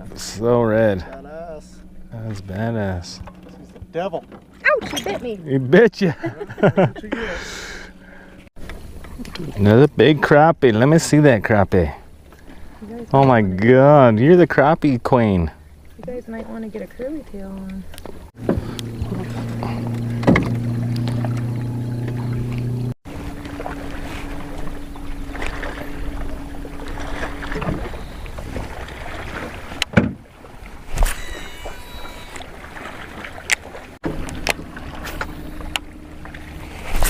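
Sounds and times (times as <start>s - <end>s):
boat motor humming: 0.0s - 37.0s
knocks on boat: 18.0s - 22.5s, 29.8s - 30.3s.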